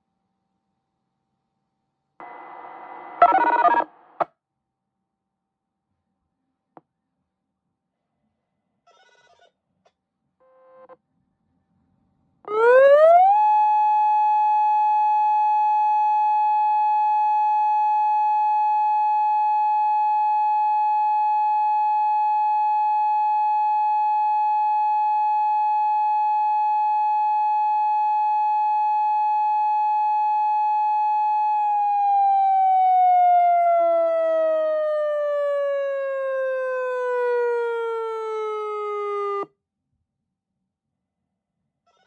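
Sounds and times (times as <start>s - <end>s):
electronic siren tone: 2.2s - 4.3s, 12.5s - 39.5s.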